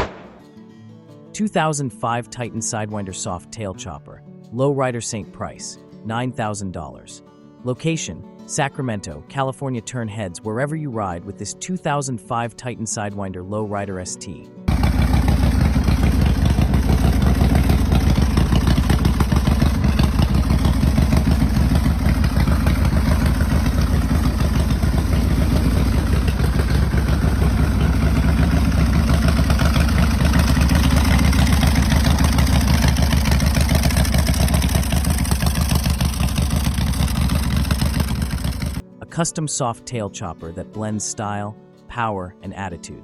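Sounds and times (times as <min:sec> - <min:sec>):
motorcycle engine running: 0:14.7 - 0:38.8.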